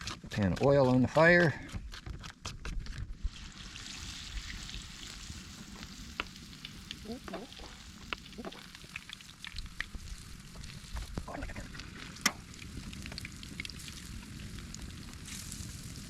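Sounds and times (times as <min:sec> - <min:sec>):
oil pops and crackles: 0:00.0 - 0:16.0
fish frying in hot oil: 0:03.2 - 0:16.0.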